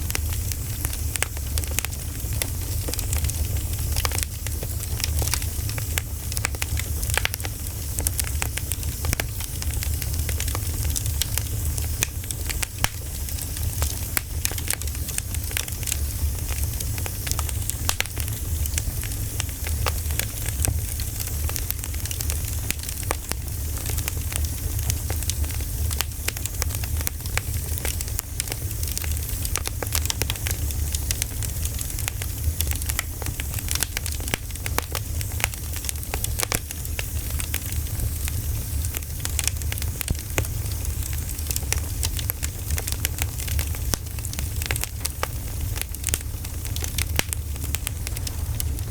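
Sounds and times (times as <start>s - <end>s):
campfire crackling and popping: 0.0s - 48.9s
steady low rumble: 46.0s - 48.9s.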